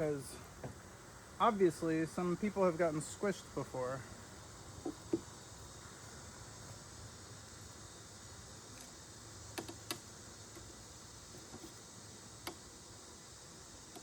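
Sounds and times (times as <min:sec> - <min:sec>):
faint steady background noise: 0:00.0 - 0:14.0
wooden beehive boxes knocking: 0:04.8 - 0:05.4.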